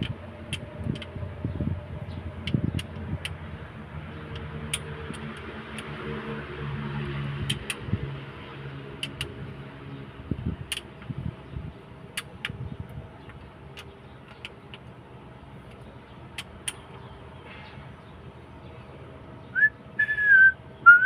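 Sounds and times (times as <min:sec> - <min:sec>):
sharp clicks: 0:00.0 - 0:01.2, 0:02.4 - 0:03.4, 0:07.4 - 0:07.9, 0:09.0 - 0:09.4, 0:10.6 - 0:11.2, 0:12.1 - 0:12.6, 0:13.2 - 0:14.9, 0:15.7 - 0:17.0.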